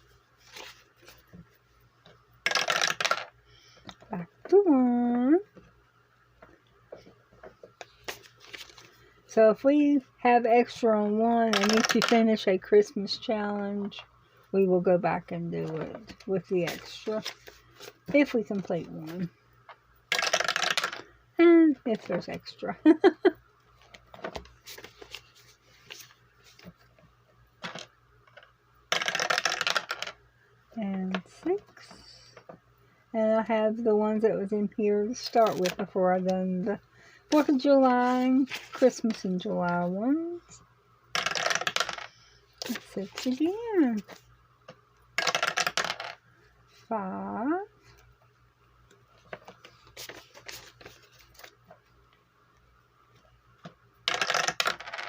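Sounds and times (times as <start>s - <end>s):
paper rustling: 0.4s - 1.4s, 8.0s - 9.0s, 24.6s - 26.8s, 37.5s - 38.8s, 49.2s - 51.5s.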